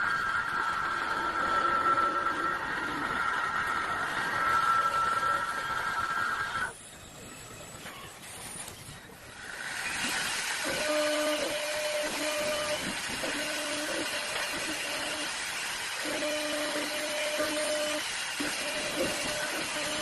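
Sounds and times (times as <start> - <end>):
two-tone motor whine: 0.0 - 20.0
lathe hiss: 9.3 - 20.0.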